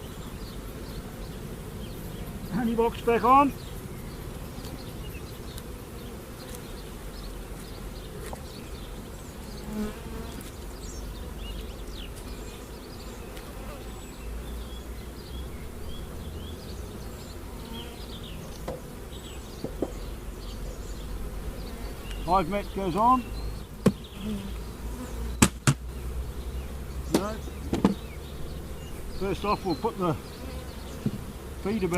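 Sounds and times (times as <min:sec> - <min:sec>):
honey bees buzzing: 0:00.0 - 0:31.9.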